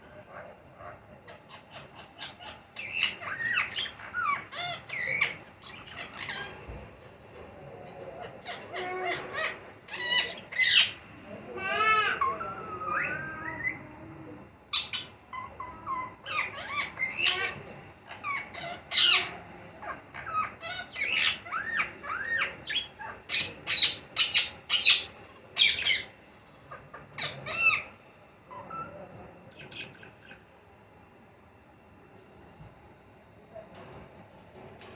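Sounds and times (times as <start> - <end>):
parrots squawking and chirping: 0.0 - 30.6.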